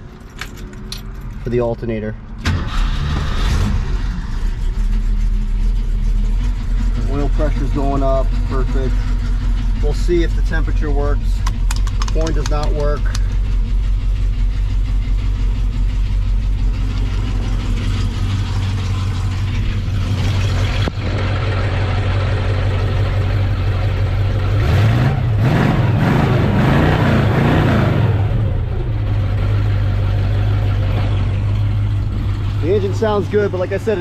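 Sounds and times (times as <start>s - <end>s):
car engine idling and revving: 0.0s - 34.0s
alternator pulley noise: 4.3s - 24.6s.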